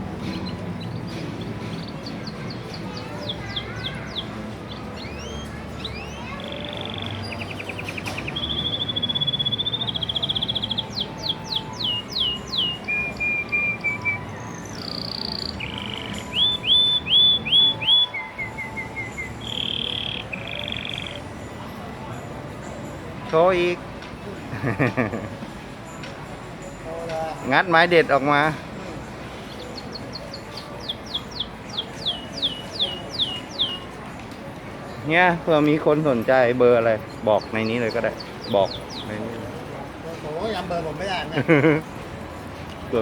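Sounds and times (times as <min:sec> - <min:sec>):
canary singing: 0:00.0 - 0:21.9, 0:26.6 - 0:34.3, 0:34.9 - 0:39.7.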